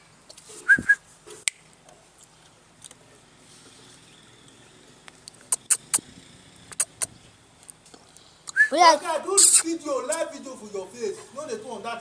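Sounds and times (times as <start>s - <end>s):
faint background noise: 0.0s - 12.0s
sharp clicks: 5.1s - 7.8s.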